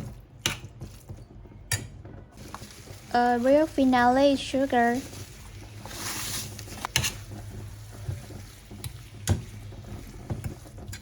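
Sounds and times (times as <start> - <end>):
food sizzling in a pan: 2.4 - 11.0.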